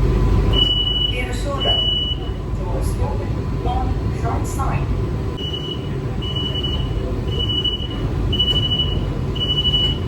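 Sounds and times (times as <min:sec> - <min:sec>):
electric train rumbling: 0:00.0 - 0:10.0
high electronic beeps: 0:05.4 - 0:10.0.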